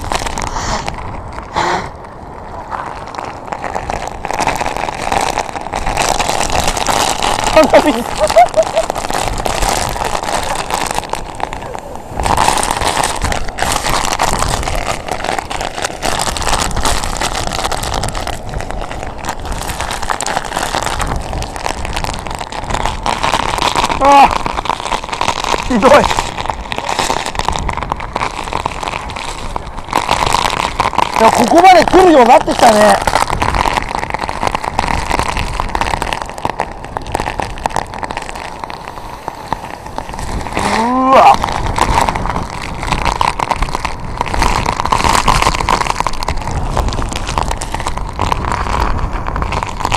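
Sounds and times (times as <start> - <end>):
rapid crackling hits: 0.0 - 49.9
wind blasting microphone: 0.0 - 49.9
wind gusts buffeting microphone: 38.7 - 49.9.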